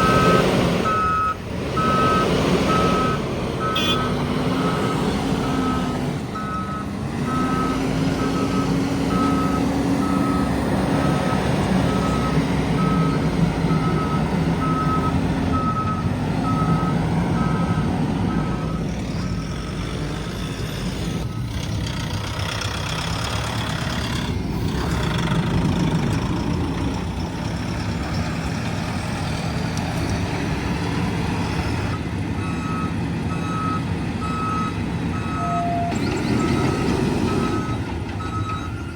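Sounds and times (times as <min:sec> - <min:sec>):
reversing alarm beeping: 0:00.0 - 0:21.6, 0:31.4 - 0:38.9
loader diesel engine working: 0:00.0 - 0:38.9.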